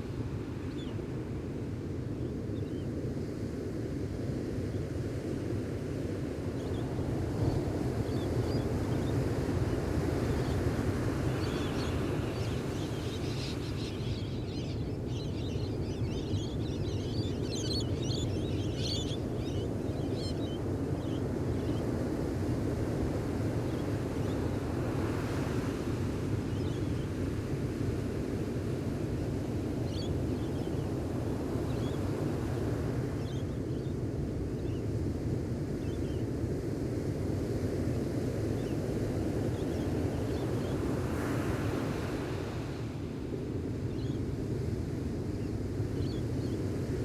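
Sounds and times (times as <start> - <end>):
small birds chirping: 11.3 - 21.8
ocean waves washing on beach: 18.6 - 47.0.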